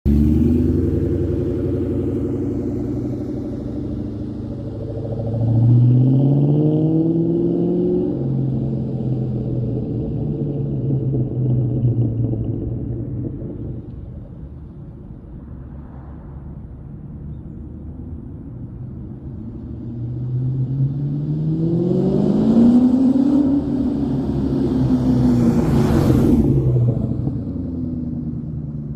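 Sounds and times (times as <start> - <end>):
car engine revving: 0.1 - 14.7
high supercharger whine: 0.1 - 17.6.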